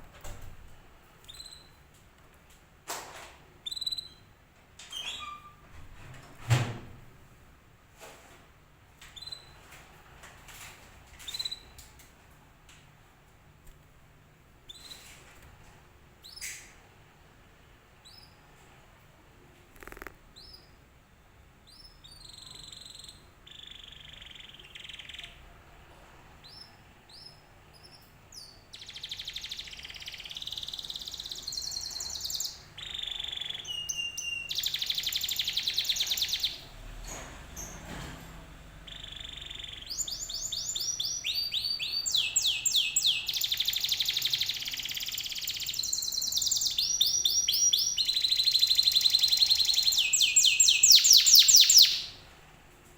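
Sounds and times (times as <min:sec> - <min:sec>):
canary singing: 0:01.2 - 0:01.8, 0:03.6 - 0:04.3, 0:04.9 - 0:05.6, 0:09.2 - 0:09.6, 0:19.8 - 0:20.8, 0:21.6 - 0:25.4, 0:26.4 - 0:36.7, 0:38.8 - 0:52.2.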